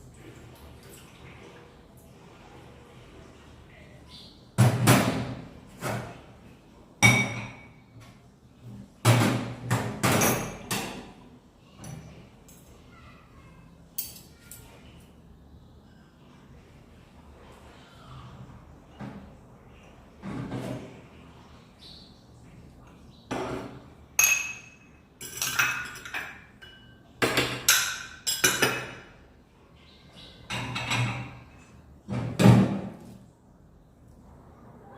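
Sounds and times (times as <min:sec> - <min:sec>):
utensils and dishes clinking: 0:07.0 - 0:07.8, 0:09.2 - 0:11.2, 0:14.0 - 0:14.7, 0:23.4 - 0:29.2, 0:30.4 - 0:31.8.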